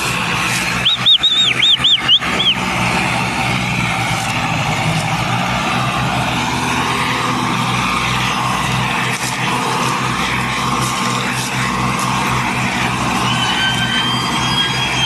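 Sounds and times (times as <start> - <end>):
tractor engine running: 0.0 - 15.0
high chirping whistles: 0.8 - 2.6, 13.2 - 15.0.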